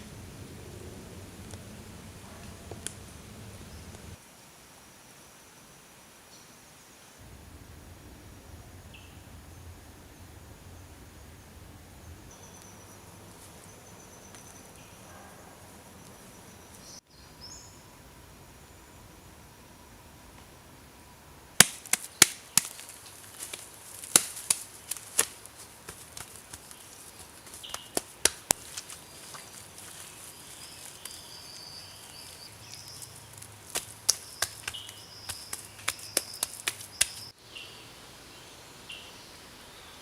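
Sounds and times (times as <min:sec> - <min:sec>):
sharp taps and clicks: 0:21.6 - 0:30.0, 0:32.7 - 0:37.3.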